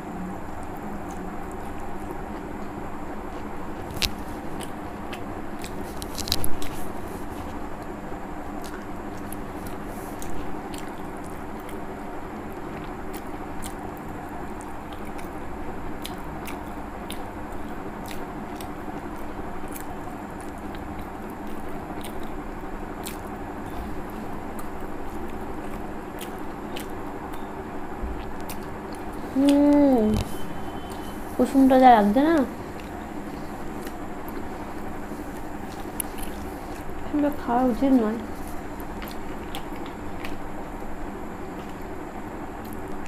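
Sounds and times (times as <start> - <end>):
steady low hum: 0.0 - 43.0
person chewing: 3.3 - 7.9, 8.5 - 27.5, 28.2 - 31.4, 32.4 - 37.1, 38.2 - 42.0, 42.6 - 43.0
person speaking: 31.4 - 32.6, 37.1 - 38.3.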